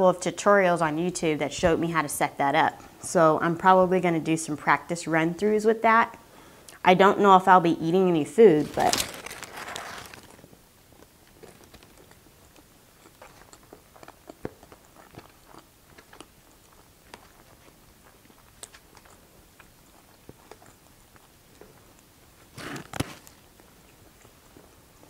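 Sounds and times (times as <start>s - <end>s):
chewing fries: 8.5s - 25.0s.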